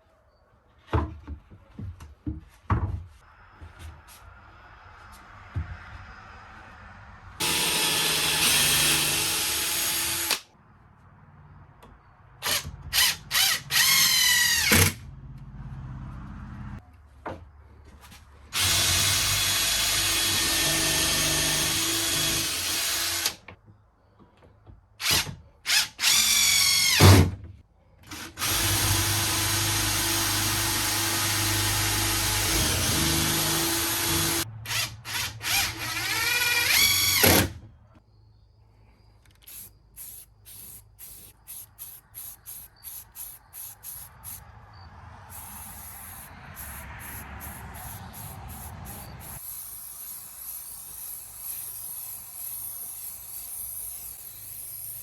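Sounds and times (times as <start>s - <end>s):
power drill whining: 7.4s - 10.4s, 18.6s - 23.4s, 25.0s - 27.2s, 28.0s - 37.5s.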